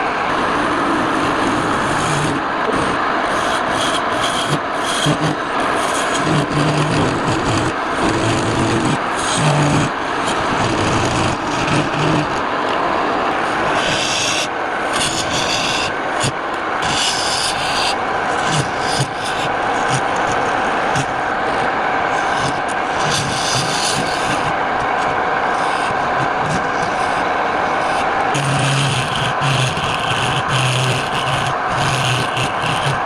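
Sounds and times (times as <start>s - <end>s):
faint steady hum: 0.0s - 33.0s
wood lathe rasping: 1.1s - 12.8s, 13.5s - 33.0s
scraping strokes on wood: 2.0s - 12.4s, 13.5s - 33.0s.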